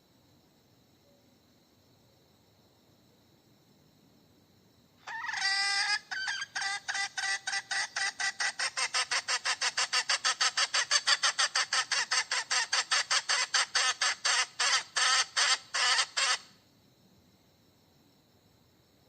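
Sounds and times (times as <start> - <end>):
hen cackling: 5.0 - 16.6.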